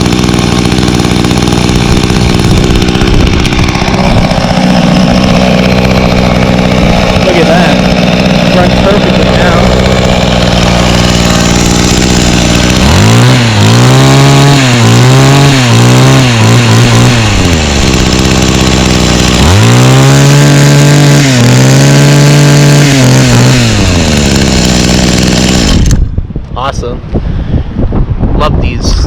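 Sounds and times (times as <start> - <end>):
two-stroke tiller engine revving: 0.0 - 26.1.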